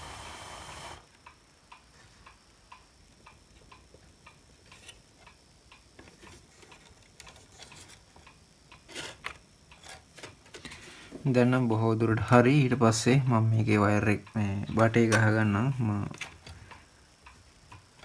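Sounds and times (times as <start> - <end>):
loud hiss: 0.0 - 1.0.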